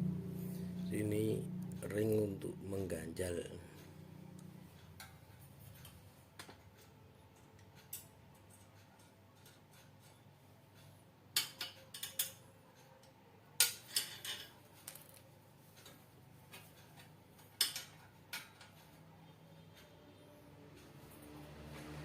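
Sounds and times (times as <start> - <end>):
low steady hum: 0.0 - 22.0
small hard parts clicking: 3.8 - 19.0.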